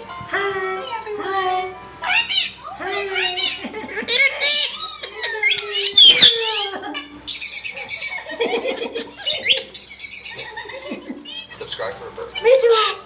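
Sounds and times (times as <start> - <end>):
parrot squawking: 2.1 - 3.6, 4.4 - 8.2
parrot screeching: 4.5 - 8.2.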